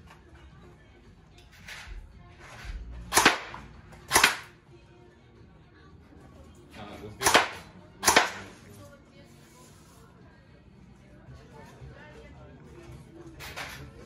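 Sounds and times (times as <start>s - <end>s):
air rifle firing sharp cracks: 3.1s - 4.5s, 7.2s - 8.5s.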